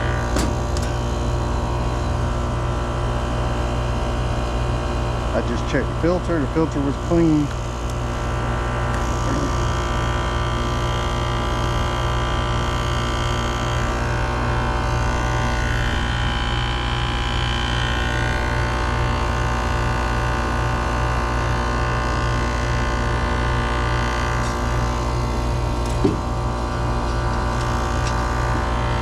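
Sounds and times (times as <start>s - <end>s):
air conditioner hum: 0.0s - 29.0s
short knock: 25.8s - 26.3s.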